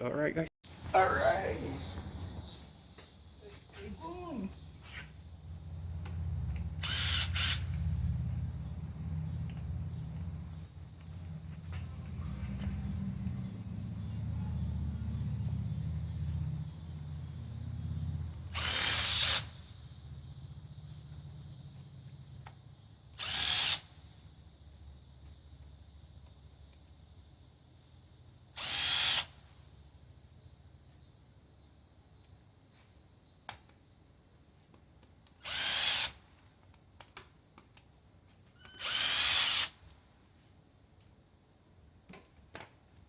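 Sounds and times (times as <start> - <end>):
power drill spinning: 3.8 - 12.9, 18.4 - 19.8, 23.1 - 24.0, 28.6 - 29.6, 35.4 - 36.3, 38.6 - 39.9.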